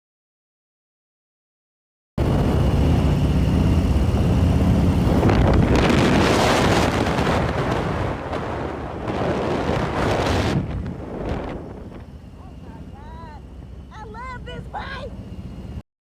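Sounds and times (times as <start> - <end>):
wind noise on microphone: 2.2 - 12.2.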